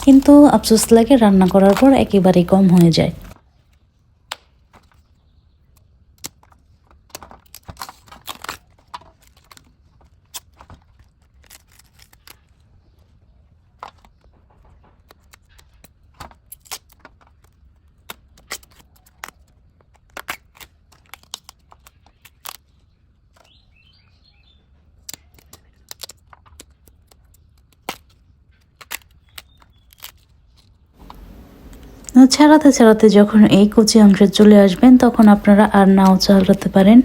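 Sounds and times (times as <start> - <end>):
banana blossom snapping and rustling: 0.0 - 3.4, 5.7 - 12.6, 15.1 - 22.8, 25.0 - 32.2.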